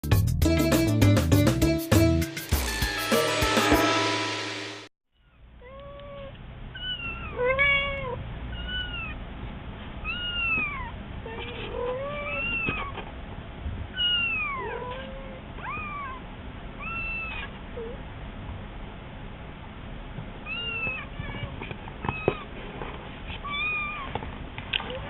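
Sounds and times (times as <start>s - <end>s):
cat meowing: 5.6s - 9.2s, 10.0s - 13.0s, 13.9s - 16.2s, 16.8s - 18.0s, 20.4s - 22.5s, 23.4s - 24.2s
kitten meowing: 5.6s - 9.2s, 10.0s - 13.0s, 14.0s - 16.2s, 16.8s - 18.0s, 20.4s - 22.5s, 23.4s - 24.2s.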